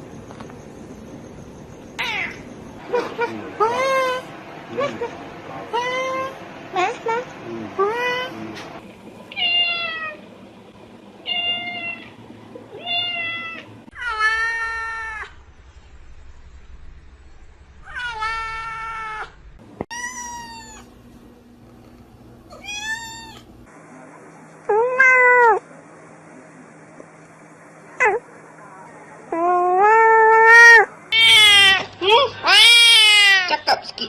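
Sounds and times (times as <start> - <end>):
background hum: 0.0 - 34.0
cats meowing: 2.0 - 2.4, 9.4 - 10.2, 11.2 - 15.4, 17.9 - 20.9, 22.5 - 23.5, 24.7 - 25.6, 29.3 - 31.8, 32.4 - 33.5.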